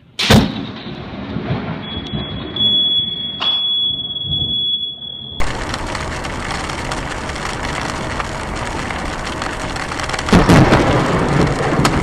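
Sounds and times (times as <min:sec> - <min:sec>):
crackling thunderclap: 0:00.2 - 0:03.2, 0:05.4 - 0:12.0
heavy rain: 0:05.4 - 0:12.0.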